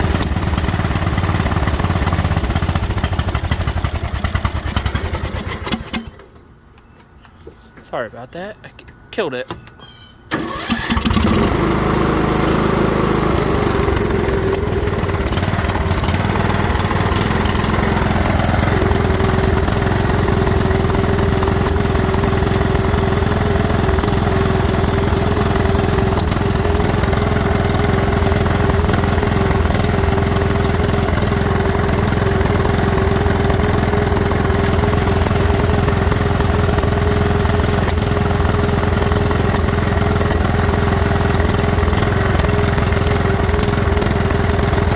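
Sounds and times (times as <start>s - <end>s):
riding mower engine: 0.0s - 6.9s, 10.3s - 44.9s.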